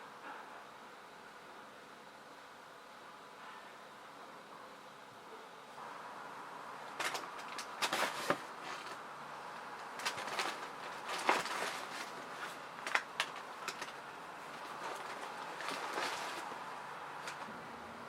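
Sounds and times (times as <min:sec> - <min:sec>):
objects clicking and knocking: 0:06.9 - 0:09.0, 0:09.8 - 0:16.6.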